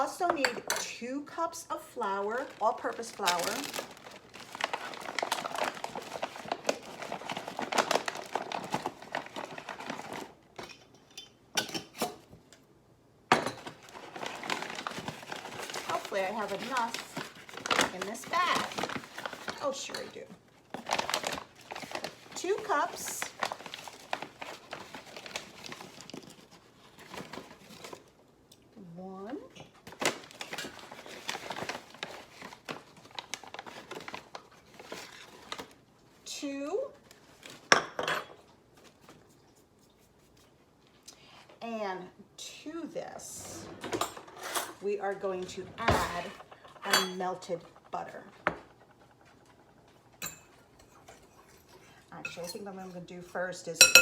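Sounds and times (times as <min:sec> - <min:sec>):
flour bag crinkling: 0:01.9 - 0:10.6, 0:13.6 - 0:28.2, 0:29.8 - 0:36.3.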